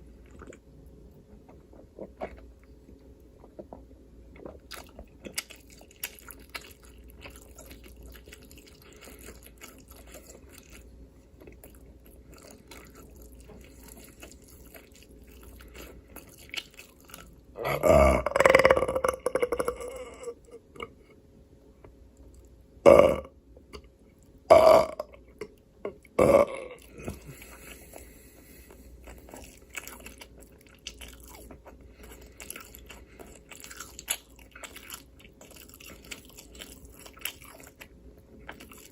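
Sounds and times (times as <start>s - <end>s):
person burping: 17.6s - 20.9s, 22.8s - 23.3s, 24.5s - 25.2s, 26.2s - 27.2s.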